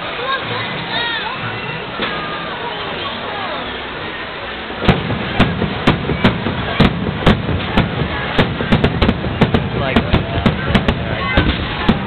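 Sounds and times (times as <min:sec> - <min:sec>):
steady background noise: 0:00.0 - 0:12.0
firework shells banging: 0:04.8 - 0:12.0.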